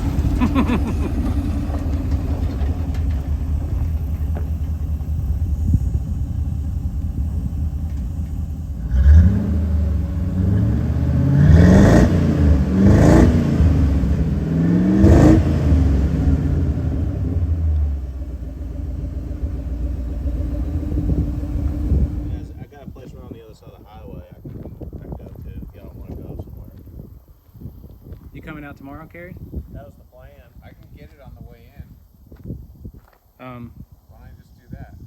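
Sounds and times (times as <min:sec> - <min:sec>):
truck engine idling and revving: 0:00.0 - 0:22.6.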